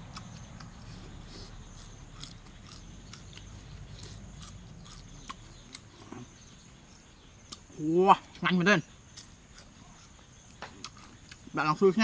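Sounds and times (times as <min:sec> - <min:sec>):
person chewing crunchy food: 0:00.0 - 0:06.4, 0:09.1 - 0:11.5.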